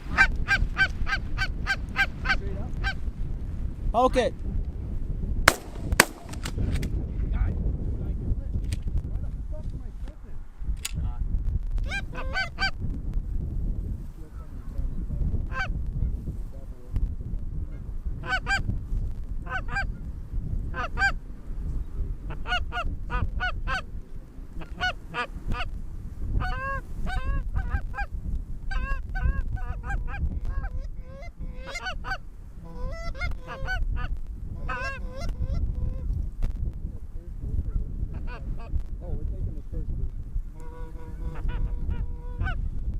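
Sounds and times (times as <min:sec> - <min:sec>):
steady low rumble: 0:04.6 - 0:42.9
geese honking: 0:24.6 - 0:25.7, 0:28.7 - 0:36.0, 0:40.6 - 0:42.6.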